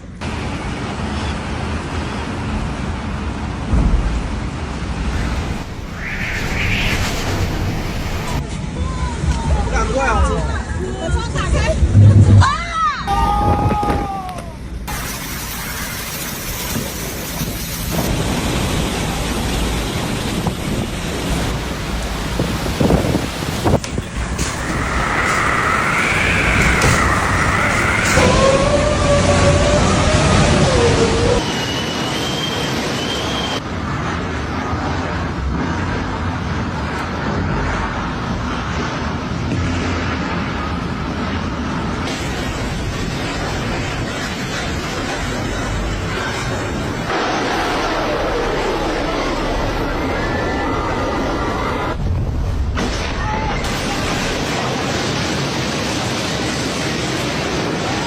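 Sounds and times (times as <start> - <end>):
driving rain: 0.0 - 8.5, 11.5 - 58.0
strong wind buffeting microphone: 2.4 - 15.4, 16.3 - 31.4
strong wind rushing: 2.7 - 9.8, 11.3 - 31.6, 33.6 - 58.0.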